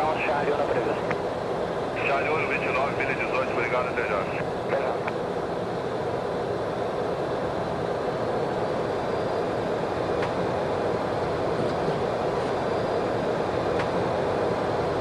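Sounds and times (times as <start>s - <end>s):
aircraft engine noise: 0.0s - 15.0s
airflow rushing in cockpit: 0.0s - 15.0s.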